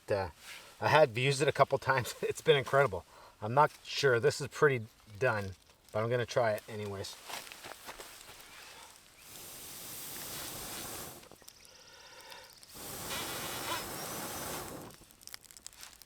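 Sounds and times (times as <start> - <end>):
air hissing through bellows tube: 8.4 - 11.5, 12.3 - 15.1.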